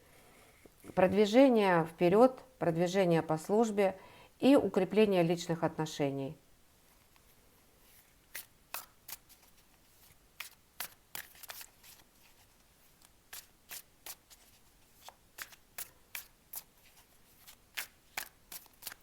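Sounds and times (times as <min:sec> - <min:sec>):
cards being shuffled: 0:07.2 - 0:19.0.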